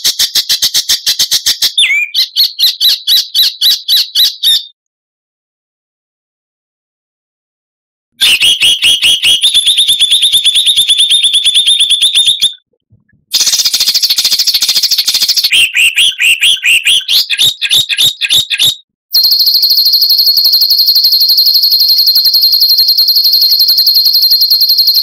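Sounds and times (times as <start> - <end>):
songbird rapid sharp notes: 13.3 - 18.8.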